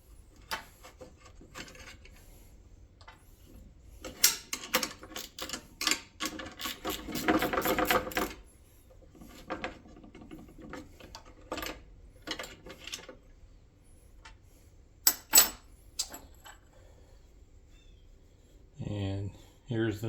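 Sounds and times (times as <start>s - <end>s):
metal parts clicking and rattling: 4.0s - 8.4s, 9.2s - 13.2s, 15.0s - 16.6s.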